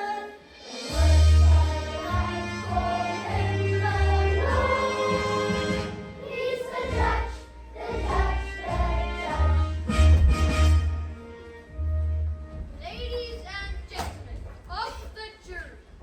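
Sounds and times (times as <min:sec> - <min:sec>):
children's choir singing: 0:00.0 - 0:09.9.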